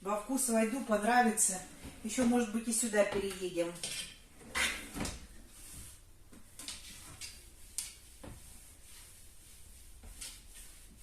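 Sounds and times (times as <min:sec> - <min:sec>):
dishes and cupboards clicking: 0:03.1 - 0:05.3.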